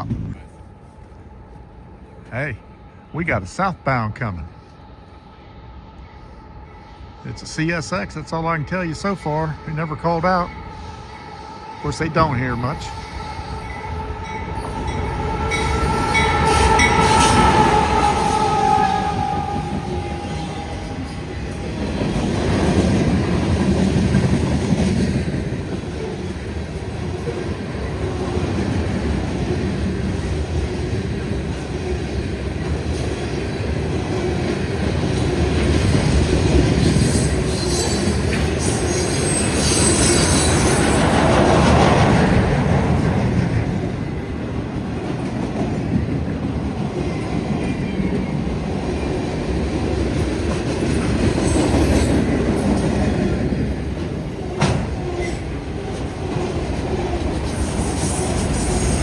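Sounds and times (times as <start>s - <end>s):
clickety-clack over rail joints: 0.0s - 0.7s, 13.6s - 59.0s
train wheels rumbling on rails: 0.0s - 59.0s
high-pitched wheel squeal: 36.9s - 41.2s.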